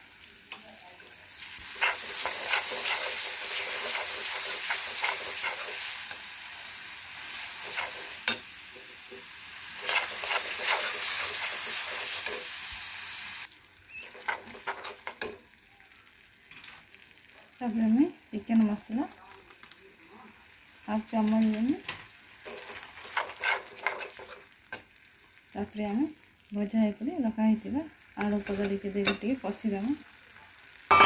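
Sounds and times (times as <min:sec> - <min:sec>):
spice paste sizzling in hot oil: 0:00.0 - 0:31.0
steel spatula scraping pan: 0:01.7 - 0:06.1, 0:07.3 - 0:08.9, 0:09.7 - 0:12.5, 0:14.0 - 0:15.4, 0:22.4 - 0:24.5.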